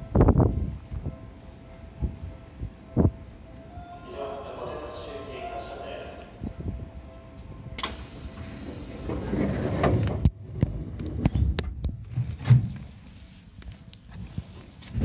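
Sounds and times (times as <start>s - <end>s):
train running gear rumbling: 6.4s - 13.1s.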